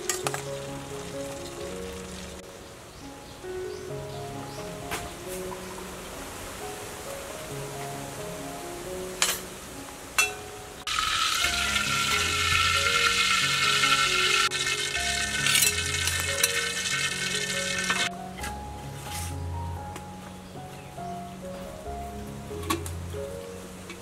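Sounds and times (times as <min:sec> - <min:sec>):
soft background music: 0:00.0 - 0:24.0
sauce sizzling in a wok: 0:10.9 - 0:18.1.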